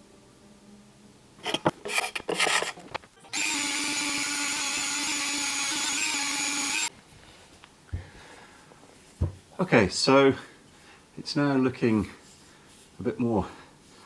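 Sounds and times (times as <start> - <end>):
scraping on wooden stick: 1.4 - 3.0
electric sander whining: 3.4 - 6.9.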